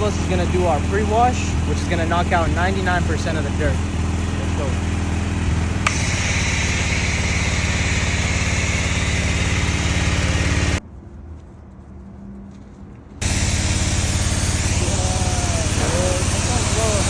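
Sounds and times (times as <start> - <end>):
pressure washer motor hum: 0.0 - 10.8, 13.2 - 17.0
water spray hiss: 13.2 - 17.0.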